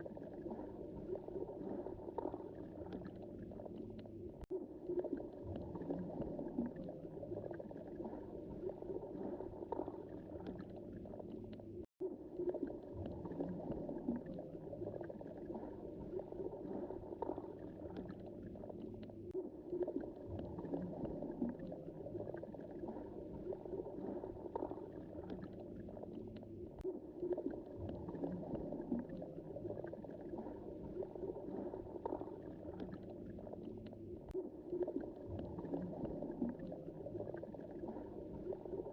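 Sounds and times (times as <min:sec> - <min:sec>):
underwater water rumble: 0:00.0 - 0:38.9
faint clicks and crackles: 0:02.2 - 0:06.9, 0:09.7 - 0:11.9, 0:17.2 - 0:22.2, 0:24.6 - 0:29.7, 0:32.0 - 0:38.6.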